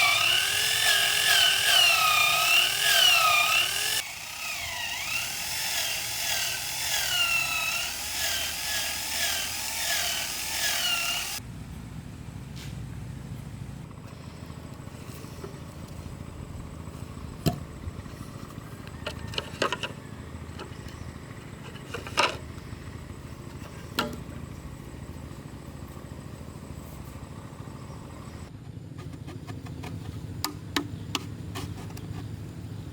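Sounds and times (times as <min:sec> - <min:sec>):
steady low hum: 0:11.3 - 0:32.9
knocks of wood being handled: 0:23.4 - 0:24.4.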